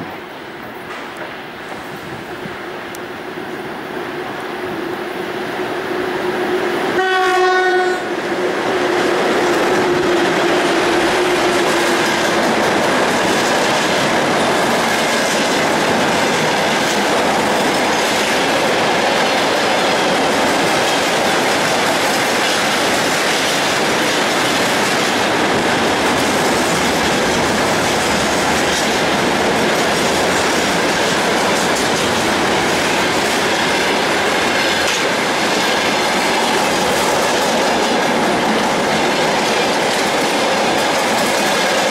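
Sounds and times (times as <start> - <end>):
train wheels clattering over rails: 0.7 - 2.6, 6.7 - 41.9
train horn blast: 6.9 - 8.2.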